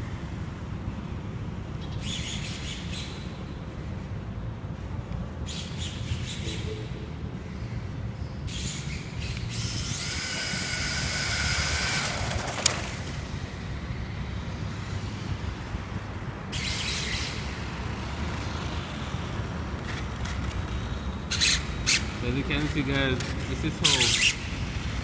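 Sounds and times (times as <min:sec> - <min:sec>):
electric motor whining: 0:09.4 - 0:13.6.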